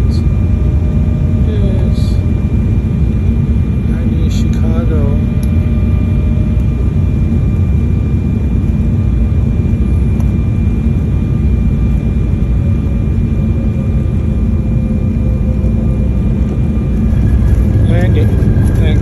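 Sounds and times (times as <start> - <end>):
jet engines and airflow rumble: 0.0 - 19.0
faint steady whine: 12.6 - 19.0.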